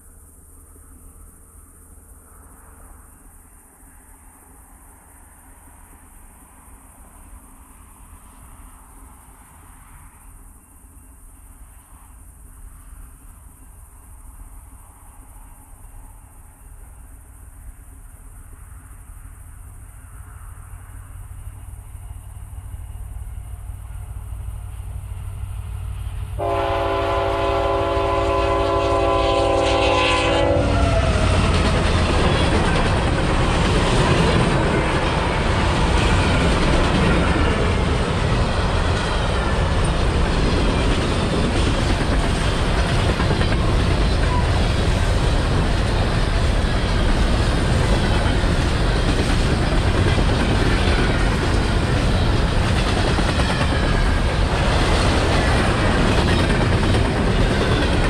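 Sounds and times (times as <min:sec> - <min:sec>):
train rumbling: 0:00.0 - 0:58.0
locomotive air horn: 0:26.4 - 0:31.4
wheels clattering on rail: 0:30.7 - 0:58.0.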